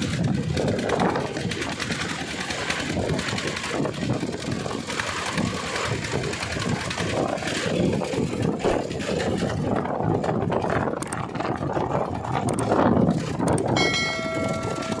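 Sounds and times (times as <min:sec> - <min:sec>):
truck diesel engine rumbling: 0:00.0 - 0:15.0
tyre and road noise: 0:00.0 - 0:15.0
steady pitched tone: 0:13.8 - 0:15.0.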